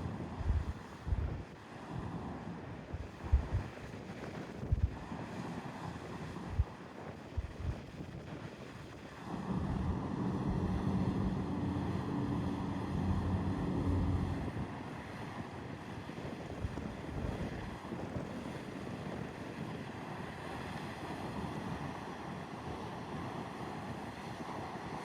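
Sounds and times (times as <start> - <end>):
wind buffeting microphone: 0.0 - 1.5, 2.9 - 5.2, 6.2 - 19.8
waves: 0.0 - 25.0
boat engine drone: 9.2 - 16.0.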